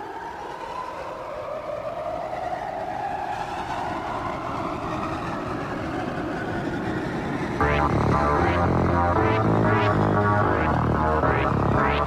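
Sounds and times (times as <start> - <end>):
rising tone: 7.6 - 12.0.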